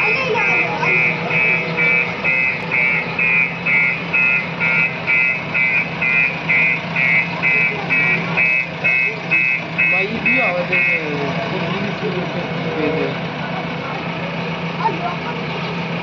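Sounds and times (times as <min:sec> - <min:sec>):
electronic beeper beeping: 0:00.0 - 0:11.0.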